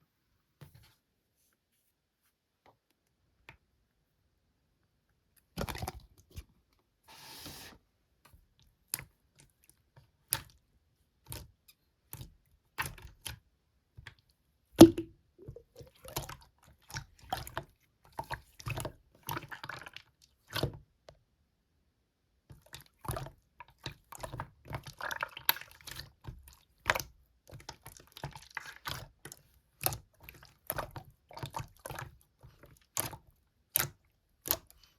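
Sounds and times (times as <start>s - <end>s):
slime squelching and popping: 14.8s - 20.6s, 22.6s - 34.8s.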